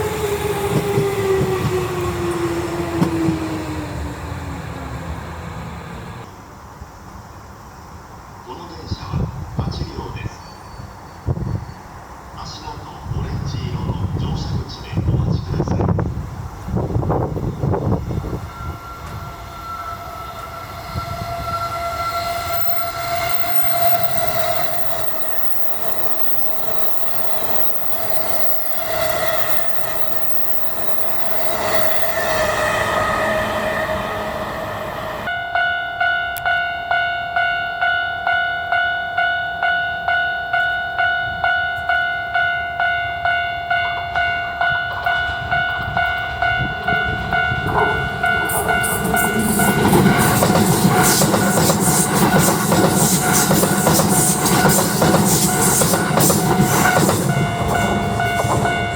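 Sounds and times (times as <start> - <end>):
electric train motors whining: 0.0 - 6.3, 16.6 - 35.3, 46.8 - 58.9
rail noise: 0.0 - 58.9
level-crossing bell ringing: 22.2 - 58.9.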